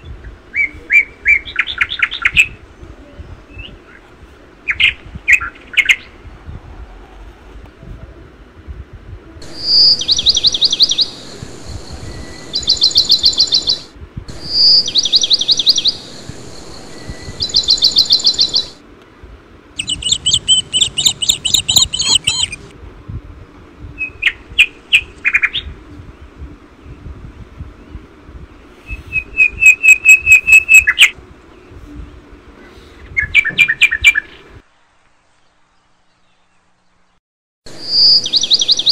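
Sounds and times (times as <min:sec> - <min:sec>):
bird chattering calls: 0:09.4 - 0:18.8, 0:19.8 - 0:22.7
short bird chirps: 0:19.8 - 0:22.6.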